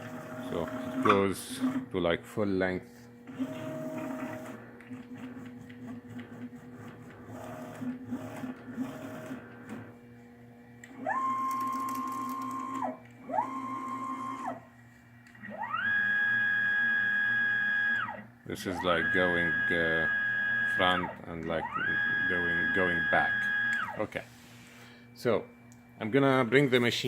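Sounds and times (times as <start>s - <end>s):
stepper motor whine: 7.4s - 26.8s.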